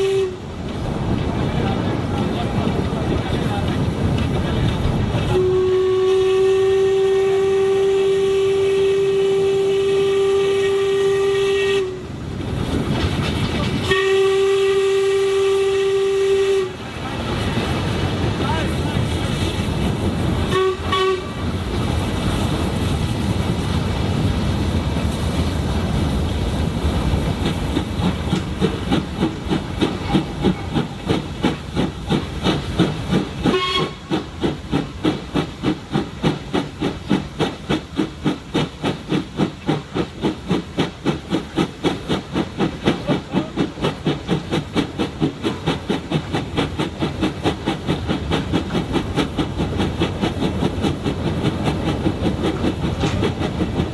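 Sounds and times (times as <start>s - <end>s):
steam whistle: 0.0s - 0.4s, 5.3s - 12.1s, 13.9s - 16.8s, 20.5s - 21.4s, 33.4s - 34.2s
steam locomotive chuffing: 0.0s - 53.9s.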